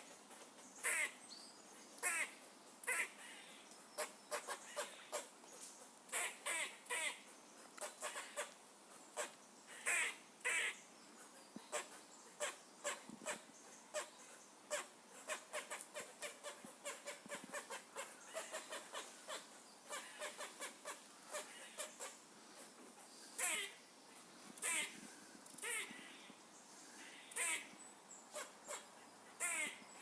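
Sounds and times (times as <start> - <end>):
squirrel squeaky calls: 2.9 - 5.3, 6.1 - 7.2, 7.8 - 8.6, 11.7 - 22.2, 24.6 - 24.9, 25.6 - 26.2, 27.1 - 29.8.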